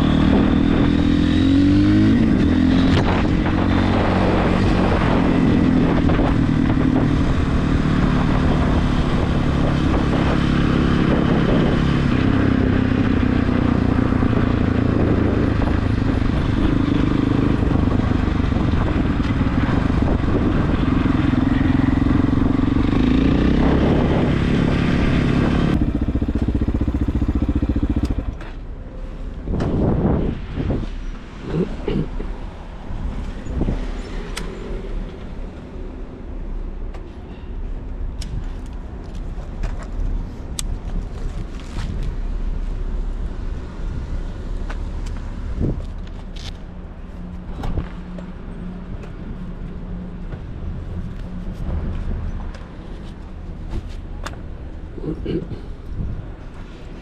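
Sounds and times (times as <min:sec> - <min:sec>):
motorcycle engine revving: 0:00.0 - 0:28.6.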